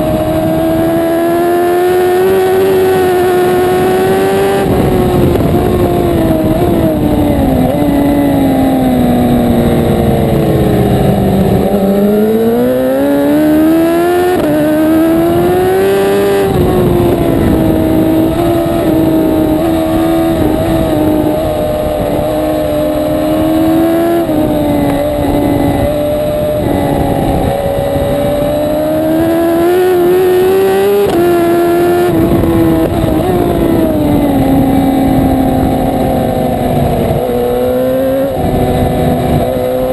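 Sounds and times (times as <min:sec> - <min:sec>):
racing motorbike engine revving: 0:00.0 - 0:39.9.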